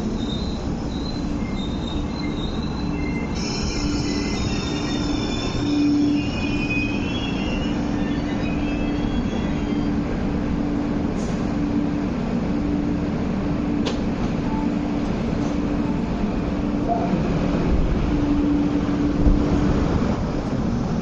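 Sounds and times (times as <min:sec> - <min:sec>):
train brakes squealing: 0:00.0 - 0:10.2.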